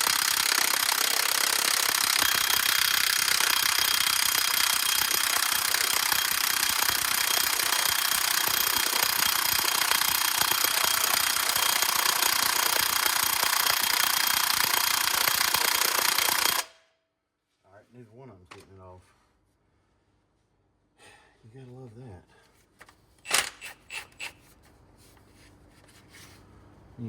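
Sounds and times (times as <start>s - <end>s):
impact wrench hammering: 0.0s - 16.8s.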